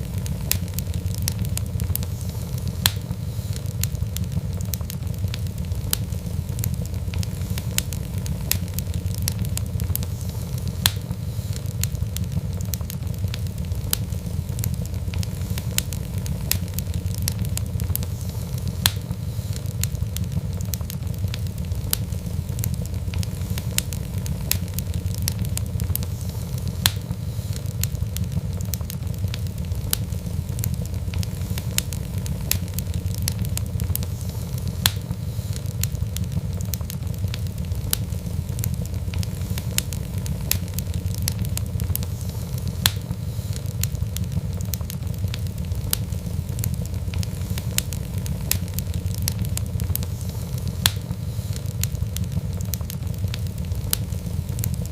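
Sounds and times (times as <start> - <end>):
steady low rumble: 0.0 - 54.9
wood fire crackling and popping: 0.0 - 54.9.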